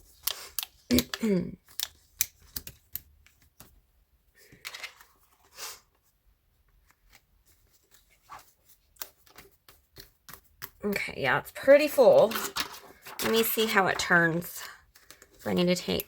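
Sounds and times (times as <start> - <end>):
paper pages rustling: 4.4 - 10.7, 11.8 - 16.0
light clicks of planner pages: 7.9 - 10.8.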